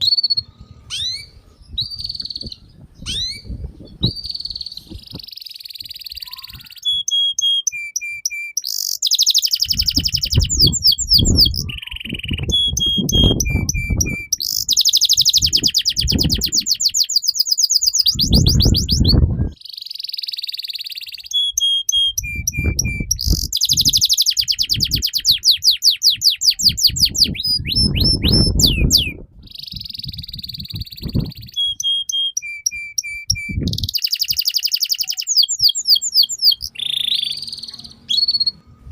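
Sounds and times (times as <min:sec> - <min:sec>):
canary singing: 0:00.0 - 0:38.8.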